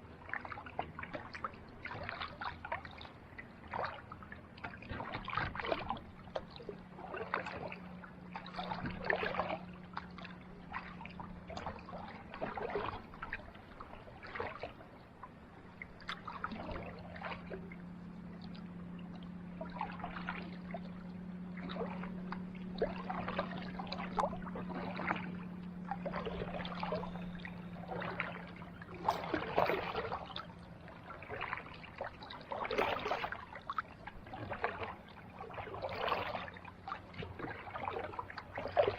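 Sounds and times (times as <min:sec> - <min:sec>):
paddle splashing in water: 0:00.0 - 0:38.9
steady low hum: 0:00.0 - 0:38.9.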